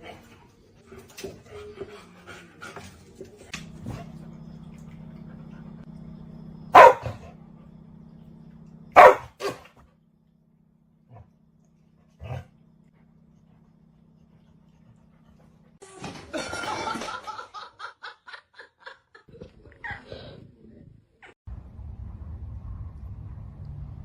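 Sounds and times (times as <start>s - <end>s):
low steady hum: 0.0s - 15.8s, 19.3s - 24.0s
dog barking: 6.7s - 7.2s, 9.0s - 9.6s.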